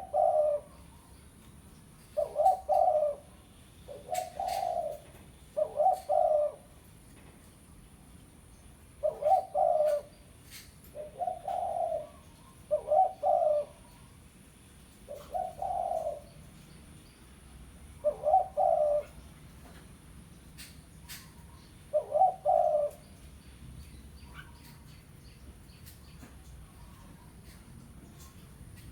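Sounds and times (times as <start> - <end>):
dove cooing: 0.0 - 1.1, 2.1 - 6.8, 9.0 - 14.1, 15.0 - 16.4, 18.0 - 19.3, 21.1 - 23.2.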